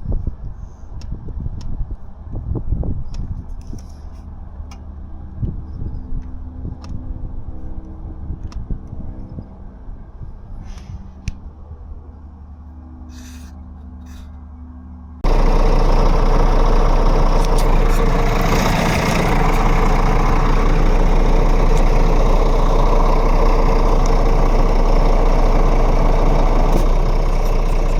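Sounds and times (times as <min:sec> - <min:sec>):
diesel truck engine idling: 0:15.2 - 0:27.9.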